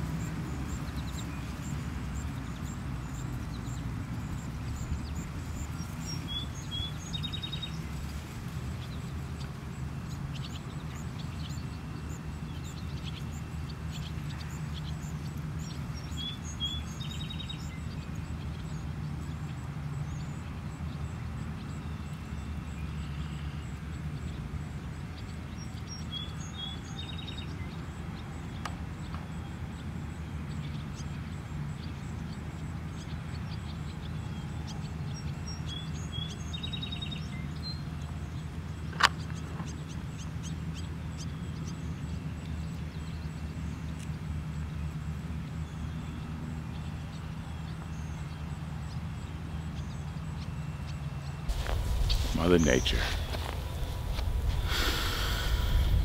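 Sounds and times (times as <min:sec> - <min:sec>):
low outdoor rumble: 0:51.2 - 0:56.0
bird singing high phrase: 0:51.5 - 0:56.0.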